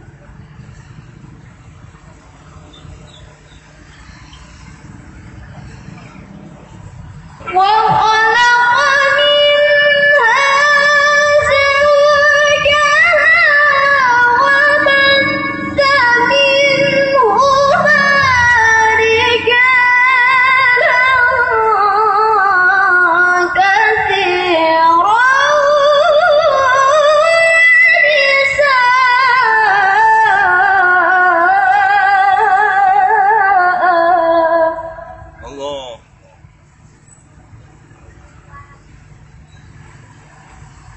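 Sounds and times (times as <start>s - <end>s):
person chanting melodic recitation: 7.4s - 36.0s.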